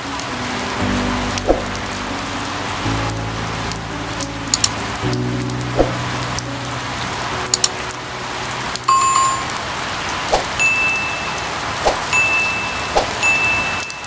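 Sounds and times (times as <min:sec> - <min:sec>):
steady rain hiss: 0:00.0 - 0:14.0
high held beep: 0:08.9 - 0:09.6, 0:10.6 - 0:11.5
two-pitch ding: 0:08.9 - 0:09.6, 0:10.6 - 0:14.0.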